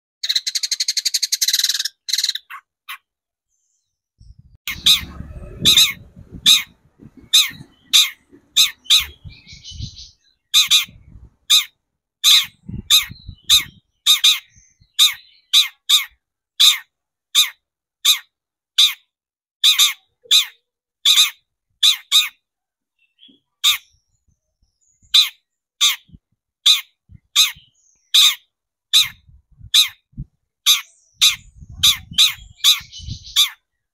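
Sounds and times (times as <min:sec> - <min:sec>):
shrike harsh rasping calls: 0:04.7 - 0:09.7.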